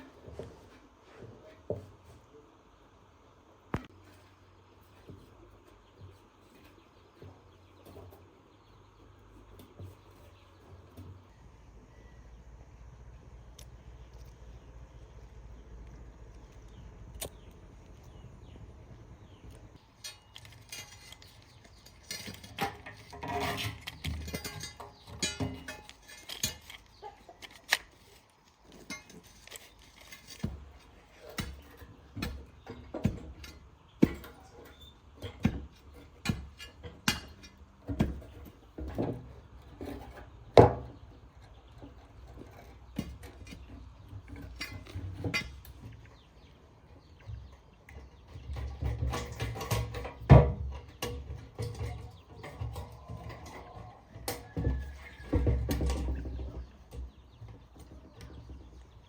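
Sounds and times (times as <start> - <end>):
metal tools clinking and knocking: 19.8 - 28.1, 28.7 - 40.2, 48.2 - 57.1.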